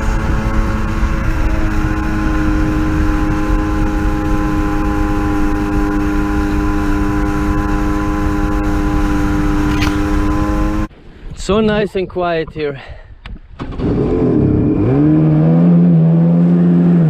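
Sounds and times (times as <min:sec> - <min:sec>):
jetski engine running: 0:00.0 - 0:10.9, 0:13.6 - 0:17.0.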